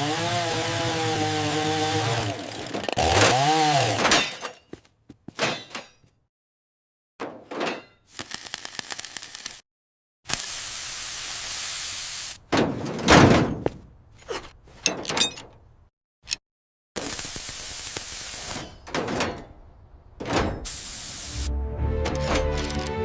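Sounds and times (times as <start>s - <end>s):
steady hiss: 10.4s - 12.4s, 20.7s - 21.5s.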